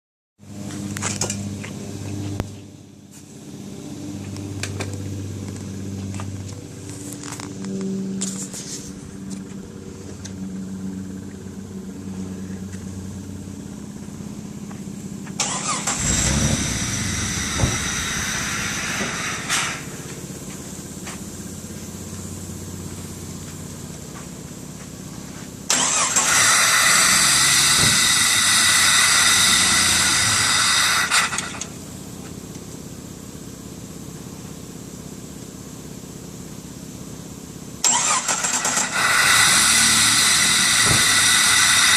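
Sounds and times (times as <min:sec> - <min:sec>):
steady low hum: 0:00.4 - 0:26.1
engine cranking on starter: 0:15.3 - 0:19.9, 0:25.7 - 0:31.8, 0:37.8 - 0:41.9.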